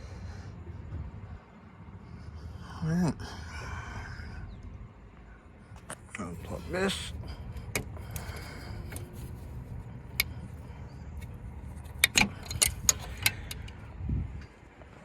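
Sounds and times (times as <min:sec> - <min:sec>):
steady low hum: 0:00.0 - 0:15.0
tools and connectors clicking: 0:07.4 - 0:14.5.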